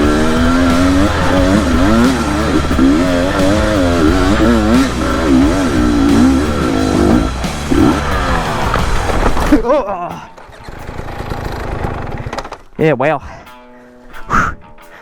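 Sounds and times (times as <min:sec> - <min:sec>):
motorcycle engine revving: 0:00.0 - 0:09.6, 0:10.4 - 0:12.4.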